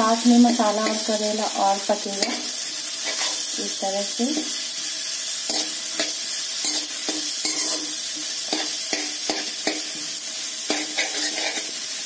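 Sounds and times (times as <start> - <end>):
food sizzling in oil: 0.0 - 12.0
metal spoon scraping pan: 2.2 - 3.5, 5.5 - 10.0, 10.7 - 11.8.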